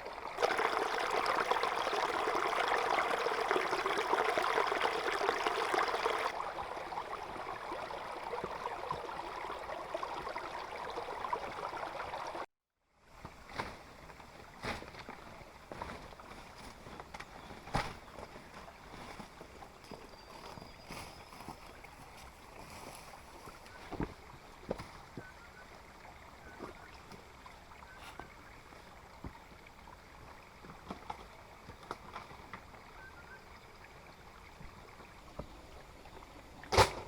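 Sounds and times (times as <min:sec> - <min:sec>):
pouring water: 0:00.0 - 0:12.5.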